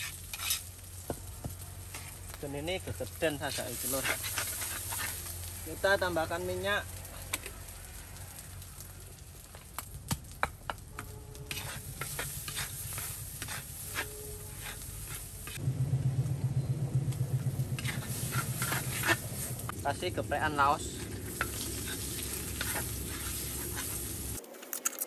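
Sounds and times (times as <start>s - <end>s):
metal spatula scraping wok: 0.0s - 0.9s, 3.2s - 6.6s, 11.3s - 15.6s, 17.7s - 19.7s, 20.9s - 24.4s
paste sizzling in oil: 0.0s - 9.5s, 11.4s - 15.6s, 17.7s - 24.4s
low rumble: 14.4s - 24.4s.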